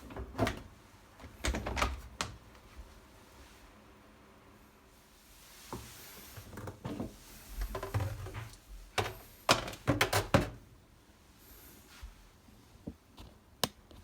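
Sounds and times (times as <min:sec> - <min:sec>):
objects knocking and clattering: 0:06.6 - 0:10.6.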